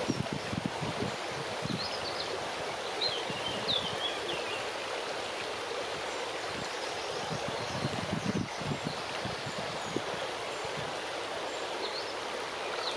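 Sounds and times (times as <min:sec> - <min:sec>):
wind gusts buffeting microphone: 0:00.0 - 0:04.1, 0:06.5 - 0:11.1
wind rushing through tree foliage: 0:00.0 - 0:12.9.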